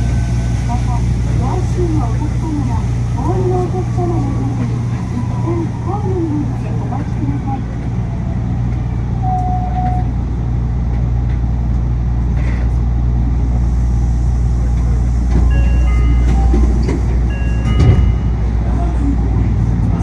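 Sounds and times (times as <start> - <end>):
monorail train rumble: 0.0 - 20.0.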